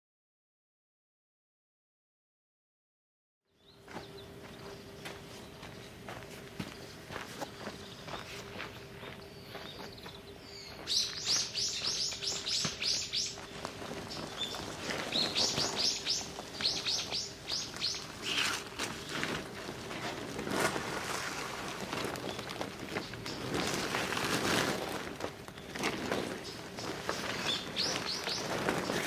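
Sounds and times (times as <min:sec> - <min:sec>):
small bird chirping: 0:07.4 - 0:19.2, 0:26.4 - 0:29.0
rough rustling noise: 0:11.5 - 0:29.0.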